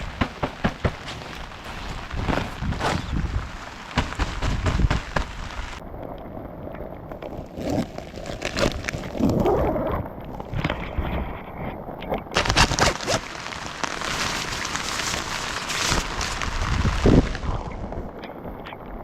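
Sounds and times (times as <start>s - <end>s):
heavy rain falling: 0.0s - 5.8s, 12.4s - 18.2s.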